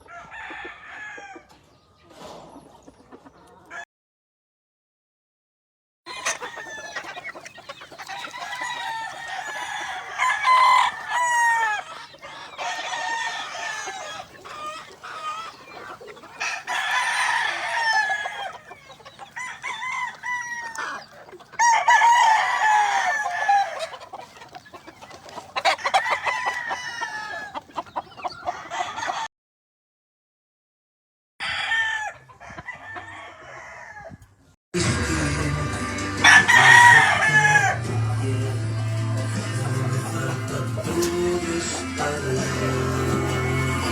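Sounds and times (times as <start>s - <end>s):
roosters crowing: 0.0s - 1.5s, 6.1s - 29.3s, 31.4s - 34.2s, 35.2s - 43.9s
hens clucking: 0.4s - 3.7s, 6.1s - 29.3s, 35.8s - 43.9s.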